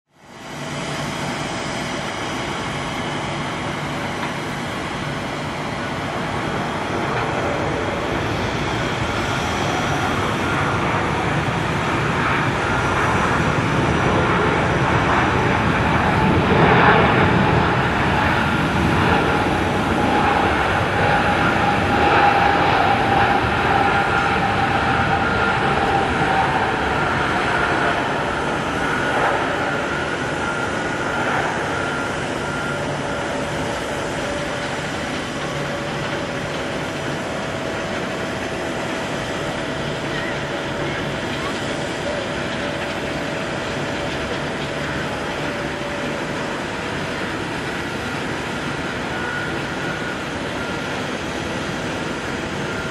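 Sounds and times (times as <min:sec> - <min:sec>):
jet engine noise with whining: 0:00.0 - 0:52.9.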